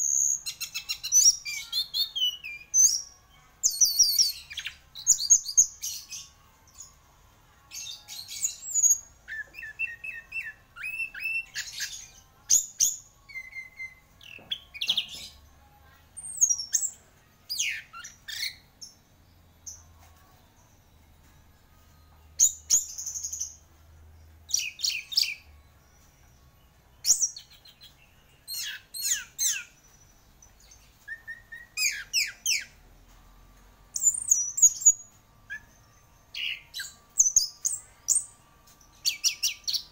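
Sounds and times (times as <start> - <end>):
bird singing whistles and chirps: 0.0 - 6.9, 7.8 - 15.4, 16.2 - 18.7, 22.4 - 23.7, 24.5 - 26.3, 27.0 - 32.8, 33.9 - 39.9.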